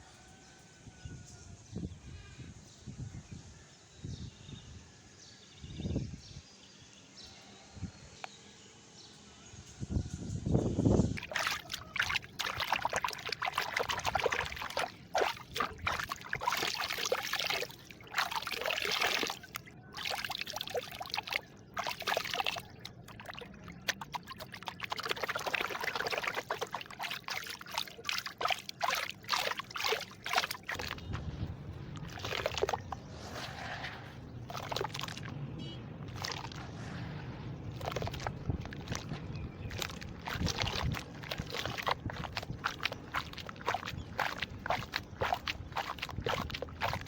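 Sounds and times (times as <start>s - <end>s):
liquid trickling and splashing: 10.9s - 47.0s.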